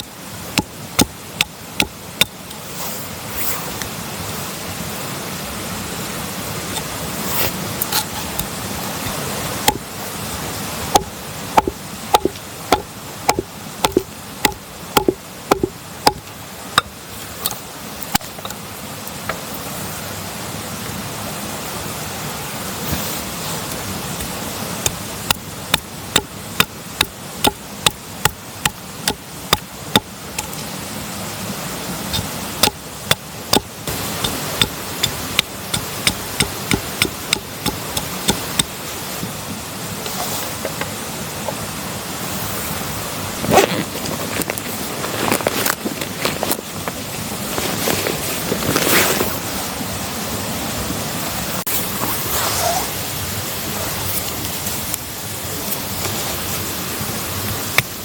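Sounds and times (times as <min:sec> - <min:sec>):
hand tool sharp blows: 0:32.1 - 0:38.8.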